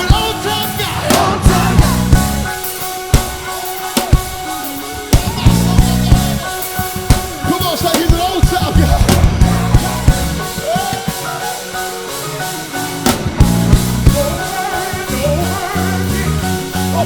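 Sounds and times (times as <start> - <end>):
sustained bass: 0.0 - 2.7, 5.2 - 10.7, 13.0 - 17.0
drum kit hits: 0.0 - 17.0
keyboard chords: 0.0 - 17.0
person singing: 0.0 - 17.0.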